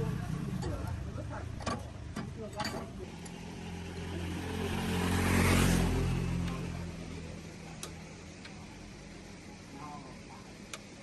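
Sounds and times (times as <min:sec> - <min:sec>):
vehicle passing by: 0:03.1 - 0:07.4.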